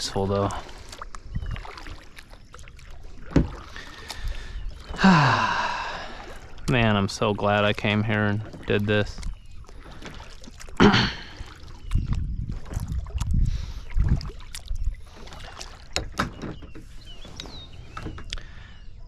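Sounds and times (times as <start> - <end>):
paddle strokes swishing through water: 0.0 - 19.0
paddle knocks: 3.2 - 3.7, 15.2 - 16.9.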